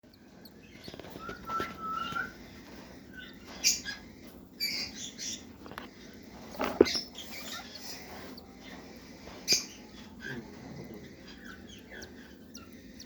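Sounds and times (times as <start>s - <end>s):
bird chicks begging calls: 0.1s - 13.0s.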